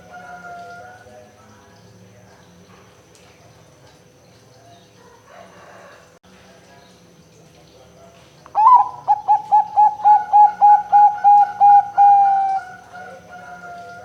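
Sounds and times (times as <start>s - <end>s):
dove cooing: 8.6s - 14.0s.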